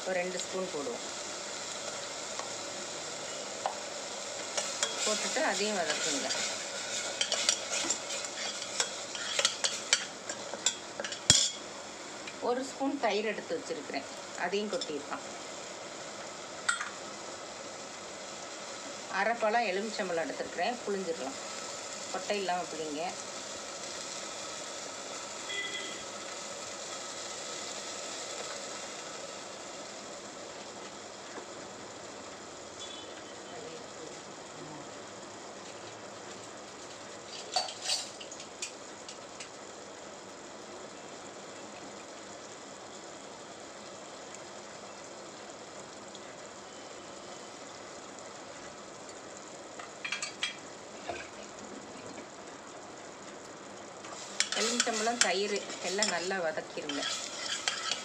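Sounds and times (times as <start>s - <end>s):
masala sizzling in a pot: 0.0s - 58.0s
brief high tone: 25.5s - 26.0s.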